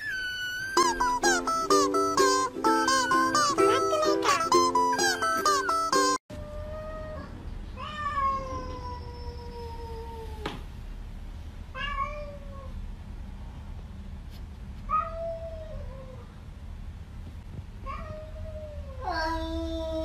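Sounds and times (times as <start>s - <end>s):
cats meowing: 2.9s - 10.4s, 11.8s - 12.8s.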